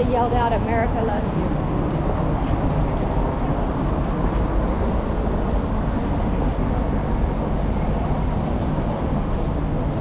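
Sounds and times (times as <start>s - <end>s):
traffic noise: 0.0s - 10.0s.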